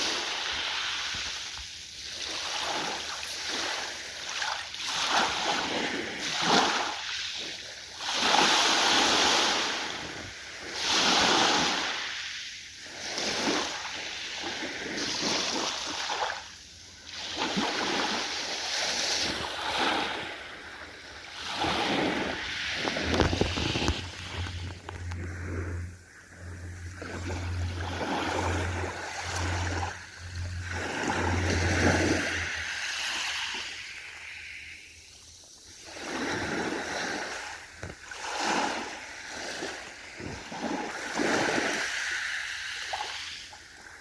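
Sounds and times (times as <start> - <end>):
ocean waves washing in: 0.0 - 44.0
low steady hum: 20.8 - 35.4.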